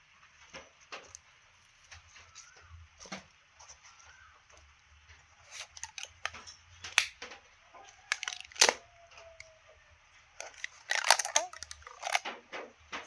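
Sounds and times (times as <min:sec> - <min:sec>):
plants and packaging rustling: 0:00.0 - 0:13.0
sharp snaps: 0:05.5 - 0:07.4.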